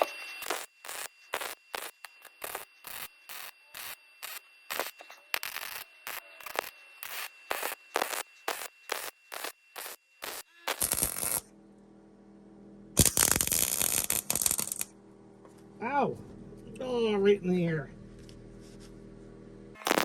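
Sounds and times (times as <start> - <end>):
welder crackling bursts: 0.0 - 11.5, 13.0 - 14.9, 19.8 - 20.0.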